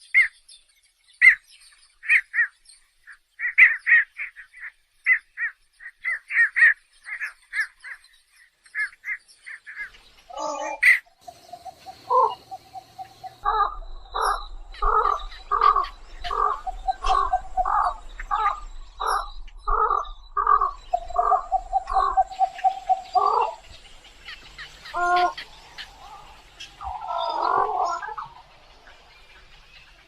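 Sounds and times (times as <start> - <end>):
stork calls: 9.7 - 30.0.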